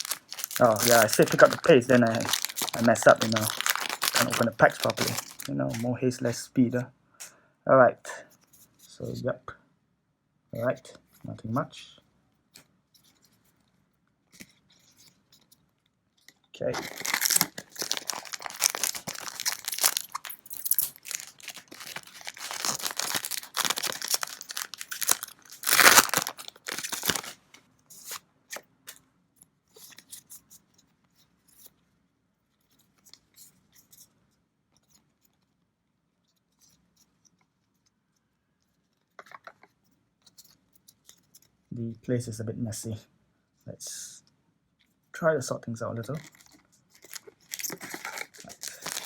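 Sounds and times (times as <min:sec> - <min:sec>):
packaging tearing and crinkling: 0:00.0 - 0:05.9, 0:16.7 - 0:27.4, 0:46.2 - 0:49.0.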